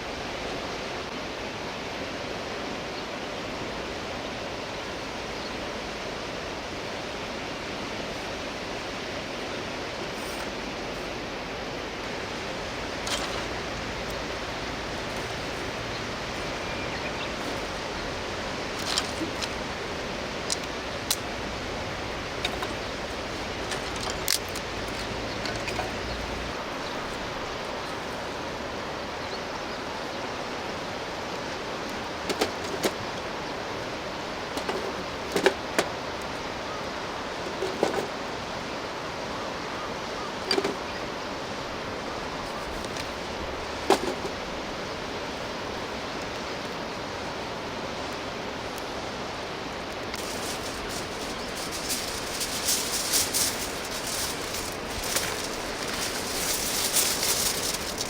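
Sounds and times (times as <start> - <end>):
campfire crackling: 50.0 - 58.0
steady rushing noise: 50.1 - 58.0.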